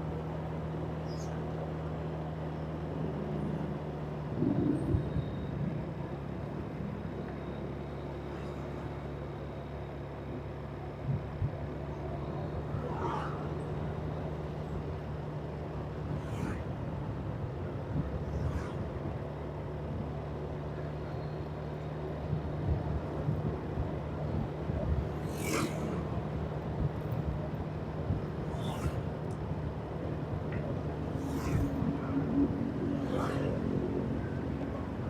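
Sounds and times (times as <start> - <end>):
whooshes of passing traffic: 0.1 - 35.0.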